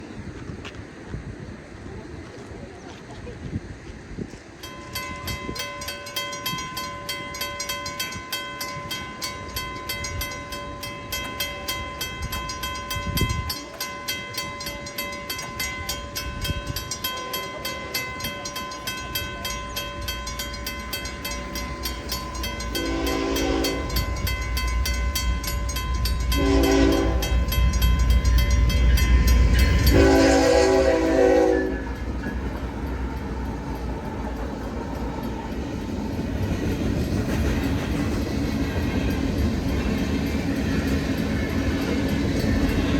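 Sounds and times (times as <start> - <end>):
low rumble of train: 0.0 - 42.9
railroad crossing bell ringing: 4.3 - 42.9
locomotive horn blasts: 22.7 - 24.2, 26.2 - 27.6, 29.8 - 32.1.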